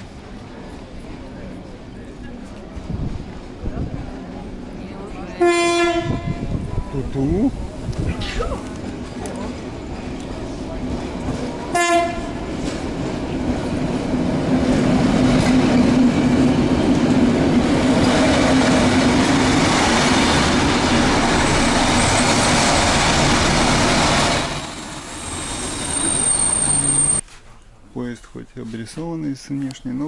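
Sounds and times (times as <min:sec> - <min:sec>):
train wheels rumbling: 0:00.0 - 0:27.2.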